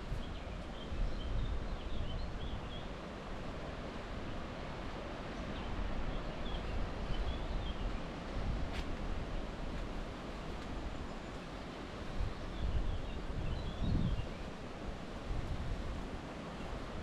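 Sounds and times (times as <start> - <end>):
wind blowing on microphone: 0.0 - 2.9, 5.6 - 11.2, 12.0 - 17.0.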